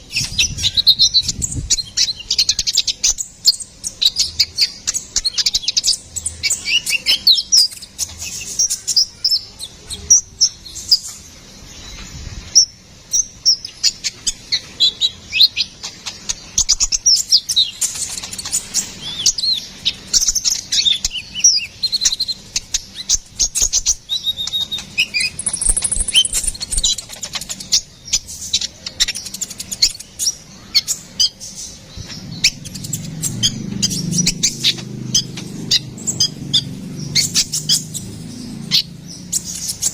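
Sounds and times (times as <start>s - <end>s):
sunbird chirping and twittering: 0.0s - 39.9s.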